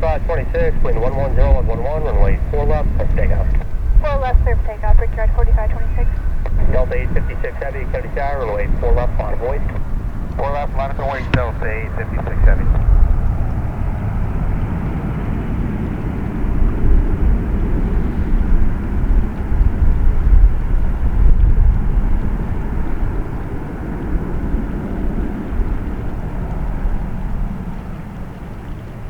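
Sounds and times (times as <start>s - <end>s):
jet engines rumbling at takeoff: 0.0s - 29.0s.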